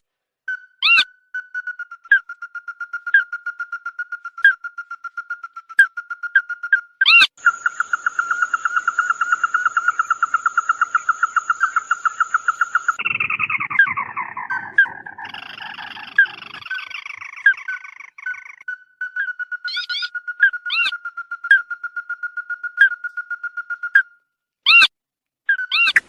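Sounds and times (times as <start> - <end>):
bird trilling: 0.8 - 24.0, 25.5 - 26.0
harsh bird chattering call: 7.0 - 21.0.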